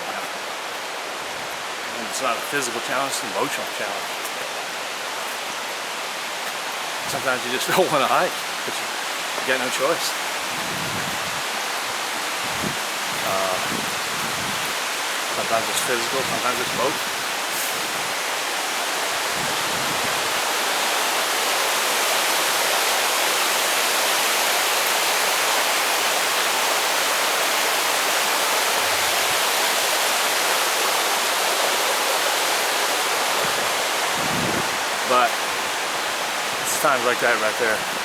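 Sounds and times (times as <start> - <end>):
brook running over rocks: 0.0 - 38.0.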